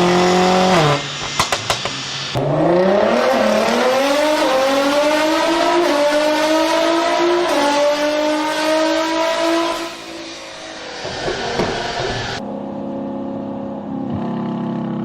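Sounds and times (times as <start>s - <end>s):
car engine accelerating hard: 0.0s - 1.1s, 2.4s - 10.1s.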